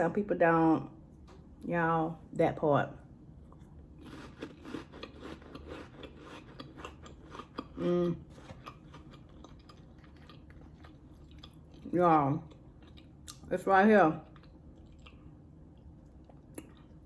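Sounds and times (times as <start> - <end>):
cracker chewing and crunching: 3.4 - 17.0.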